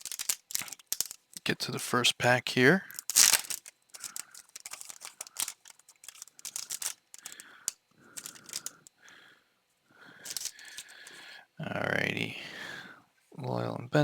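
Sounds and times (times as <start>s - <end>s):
foil wrapper tearing and crinkling: 0.0s - 1.2s, 2.9s - 7.6s.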